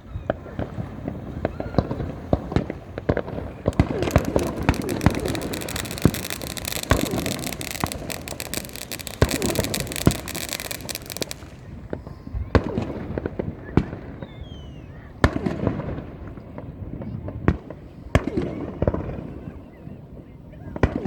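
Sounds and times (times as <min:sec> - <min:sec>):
fireworks crackling: 0:03.1 - 0:12.1
fireworks banging: 0:03.2 - 0:12.1.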